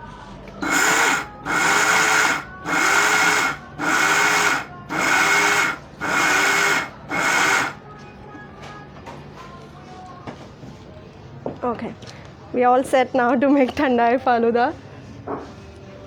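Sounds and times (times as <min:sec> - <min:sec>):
mixer grinder motor bursts: 0:00.6 - 0:07.8.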